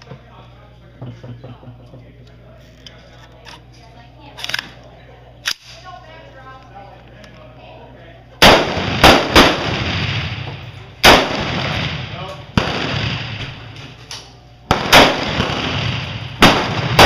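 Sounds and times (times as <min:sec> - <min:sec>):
rifle shots echoing: 0:08.4 - 0:13.9, 0:14.7 - 0:17.0.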